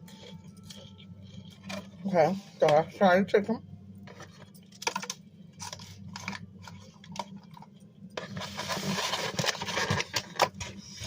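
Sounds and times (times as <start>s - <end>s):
steady low hum: 0.0s - 11.0s
rustling crinkling: 4.0s - 11.0s.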